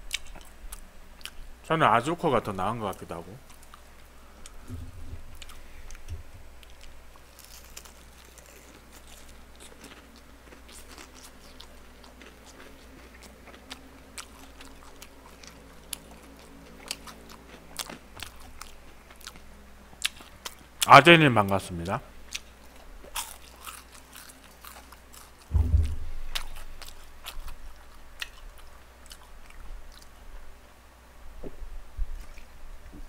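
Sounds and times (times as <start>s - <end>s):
man chewing crunchy food: 0.0s - 1.4s, 3.4s - 20.8s, 22.3s - 25.5s, 26.2s - 30.6s
low steady hum: 0.0s - 33.0s.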